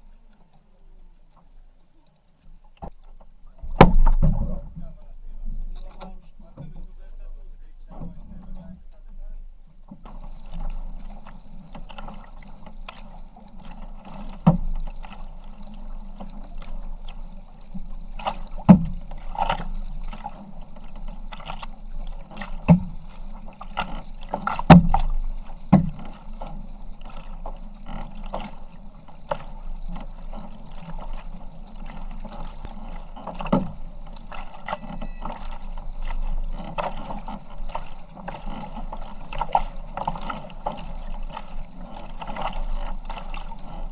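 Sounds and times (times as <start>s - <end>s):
water noise from paddling: 0.0s - 43.9s
sharp knocks: 3.7s - 4.6s.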